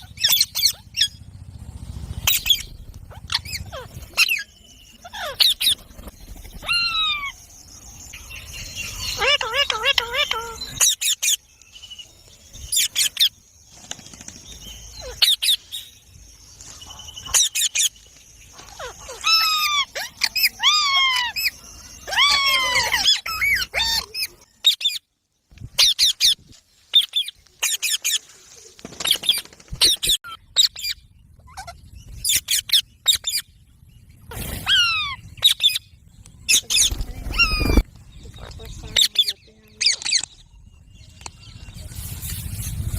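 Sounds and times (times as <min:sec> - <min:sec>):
parakeets squawking and chirping: 0:00.0 - 0:01.2, 0:02.2 - 0:11.5, 0:12.6 - 0:13.3, 0:14.9 - 0:15.8, 0:16.6 - 0:25.1, 0:25.8 - 0:28.2, 0:29.0 - 0:42.9
falling parakeet screeches: 0:34.3 - 0:35.8, 0:36.5 - 0:37.8.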